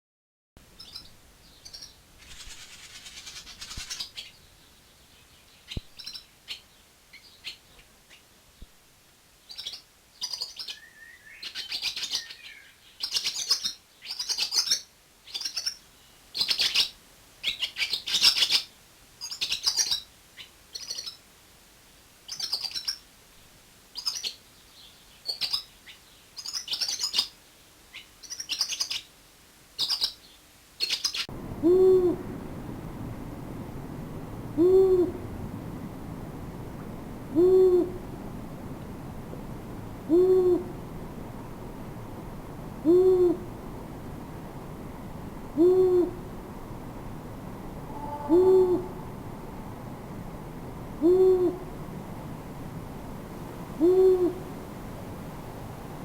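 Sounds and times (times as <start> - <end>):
small bird chirping: 0.8 - 8.3, 9.5 - 21.2, 24.0 - 29.1.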